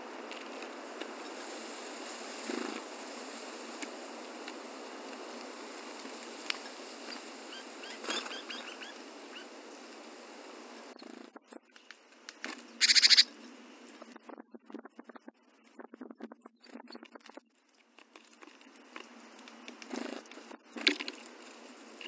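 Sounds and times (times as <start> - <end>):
steady hiss: 0.0 - 14.2, 18.6 - 22.0
small bird chirping: 6.6 - 9.8, 10.9 - 18.0.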